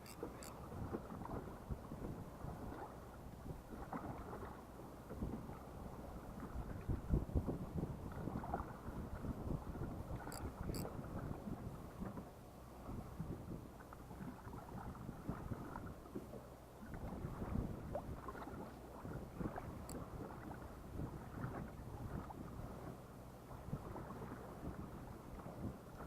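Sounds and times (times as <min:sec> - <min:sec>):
faint high clicks: 0:00.0 - 0:00.6, 0:10.2 - 0:10.9
water lapping against hull: 0:00.0 - 0:26.0
wind buffeting microphone: 0:00.0 - 0:26.0.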